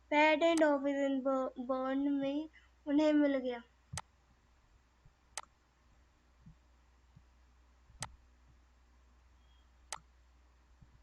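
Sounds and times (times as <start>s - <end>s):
faint low hum: 0.0s - 11.0s
sharp clicks: 9.9s - 10.1s.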